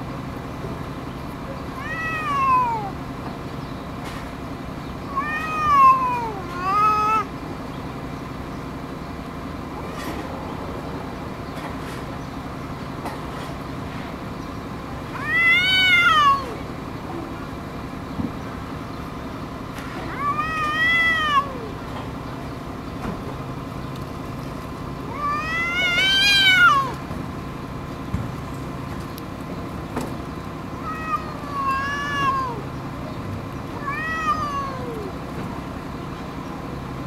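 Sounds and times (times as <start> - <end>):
steady low hum: 0.0 - 37.0
cats meowing: 1.5 - 3.2, 5.0 - 7.5, 15.0 - 17.3, 19.8 - 22.2, 25.0 - 27.1, 30.6 - 35.7.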